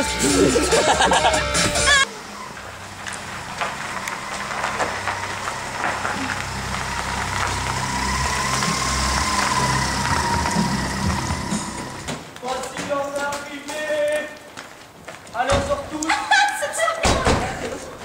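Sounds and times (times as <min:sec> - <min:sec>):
car engine humming at low revs: 0:00.0 - 0:12.1.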